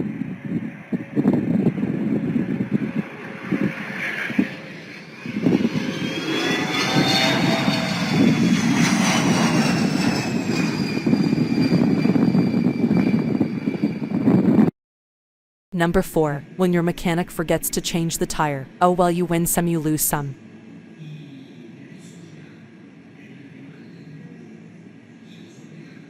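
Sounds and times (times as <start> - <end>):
jet engines spooling up: 1.0 - 14.7.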